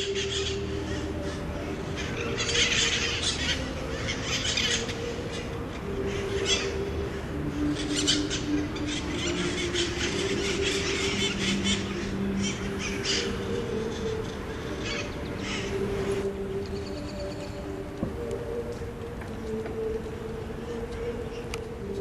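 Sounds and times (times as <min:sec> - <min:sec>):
parakeets screeching: 0:00.0 - 0:06.9, 0:07.6 - 0:15.8
low steady hum: 0:00.0 - 0:22.0.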